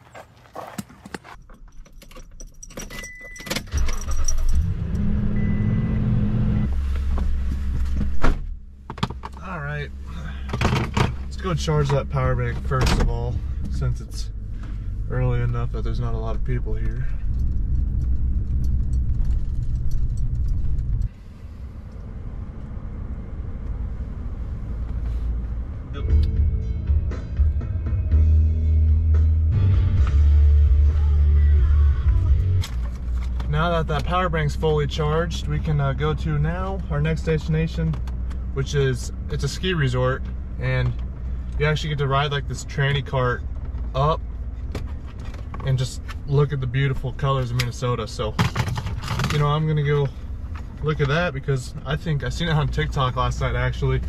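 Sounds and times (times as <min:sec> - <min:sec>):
keys jangling: 0:00.6 - 0:04.7
truck engine starting and idling: 0:01.3 - 0:54.0
music: 0:25.9 - 0:32.8.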